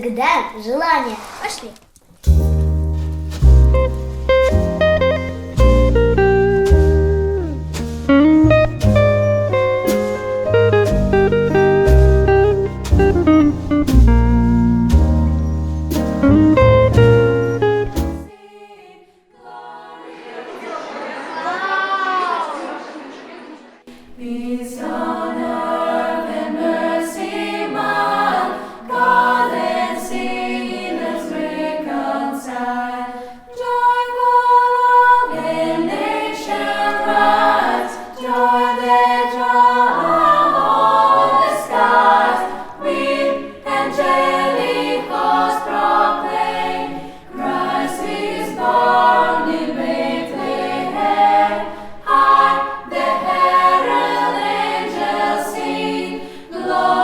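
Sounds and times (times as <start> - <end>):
choir singing in harmony: 16.5 - 57.0.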